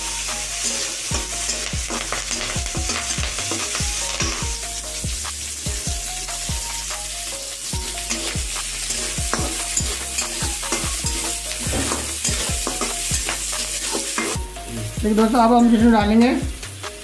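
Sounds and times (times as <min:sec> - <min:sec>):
metal spatula scraping pan: 0:00.0 - 0:04.5, 0:07.8 - 0:14.4
food sizzling in hot oil: 0:00.0 - 0:17.0.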